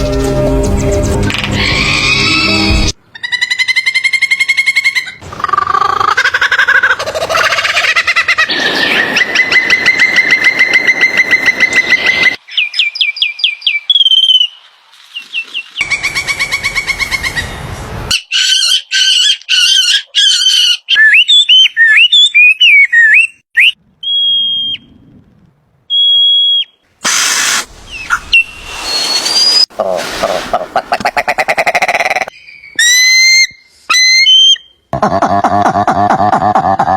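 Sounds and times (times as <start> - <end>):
whistled bird calls: 18.1 - 24.9, 25.9 - 26.8, 27.4 - 29.7, 32.3 - 34.8
sharp bird chirps: 26.0 - 29.7.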